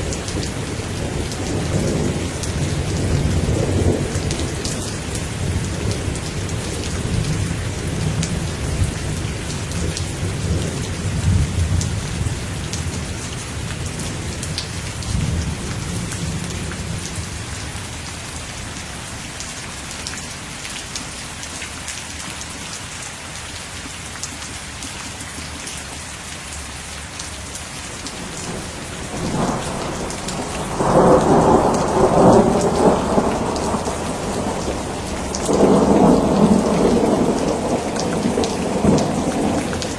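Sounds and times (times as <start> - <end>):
steady rain: 0.0 - 39.9
rolling thunder: 28.2 - 39.9.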